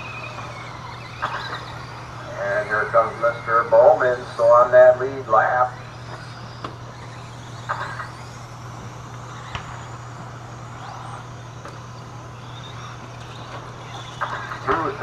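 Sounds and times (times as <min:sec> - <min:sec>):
rc truck motor whines: 0:00.0 - 0:15.0
steady low hum: 0:00.0 - 0:15.0.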